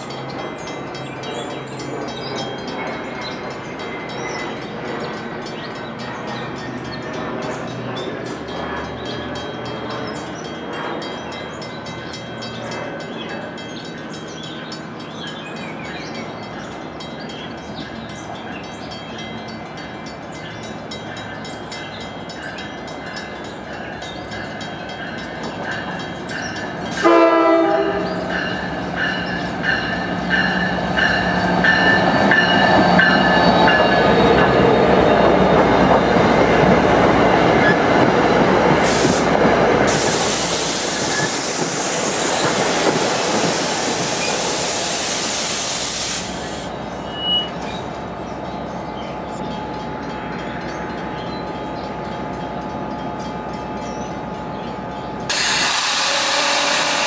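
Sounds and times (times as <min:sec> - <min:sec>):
train wheels and cars rushing past: 0:00.0 - 0:57.0
train horn: 0:27.0 - 0:28.3, 0:55.3 - 0:57.0
high hiss: 0:38.8 - 0:46.8, 0:55.3 - 0:57.0.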